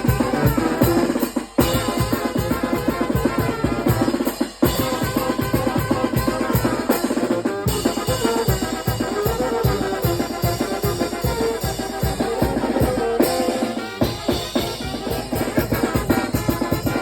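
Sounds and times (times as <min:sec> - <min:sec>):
bass drum and snare drumming: 0:00.0 - 0:17.0
wind band playing: 0:00.0 - 0:17.0.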